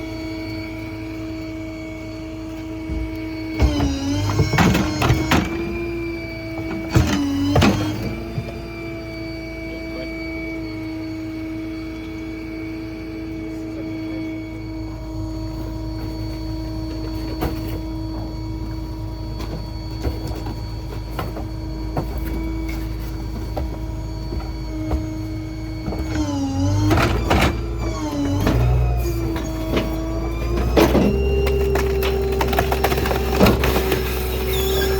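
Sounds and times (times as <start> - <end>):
hydraulic packer whine: 0.0 - 34.9
knocks and clanks: 2.8 - 6.0, 6.6 - 8.6.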